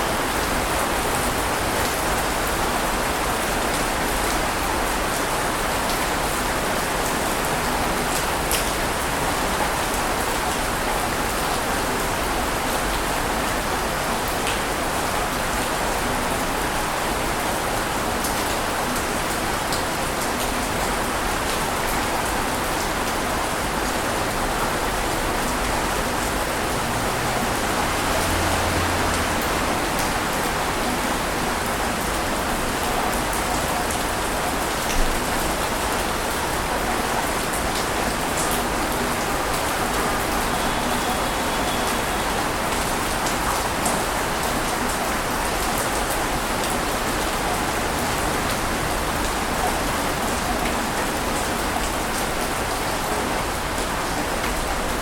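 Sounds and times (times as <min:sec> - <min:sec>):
water rushing: 0:23.3 - 0:33.4.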